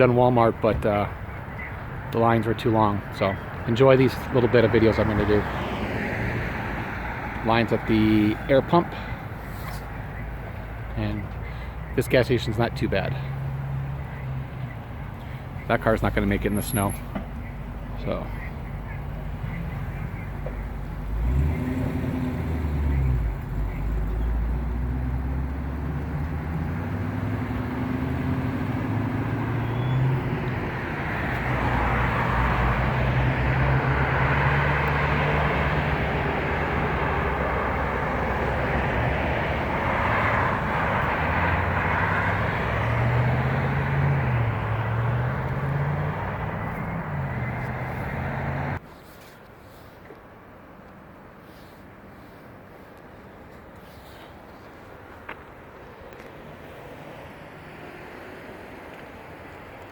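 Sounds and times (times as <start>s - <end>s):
car engine humming: 2.7s - 48.8s
road or air noise rushing: 5.0s - 11.9s, 24.3s - 59.9s.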